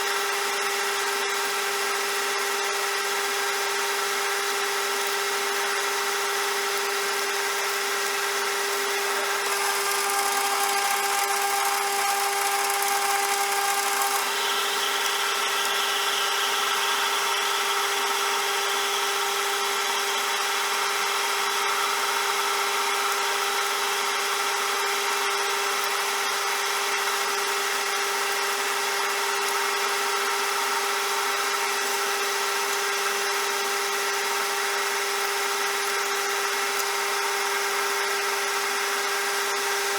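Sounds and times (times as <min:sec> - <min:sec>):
metal lathe humming: 0:08.7 - 0:21.8.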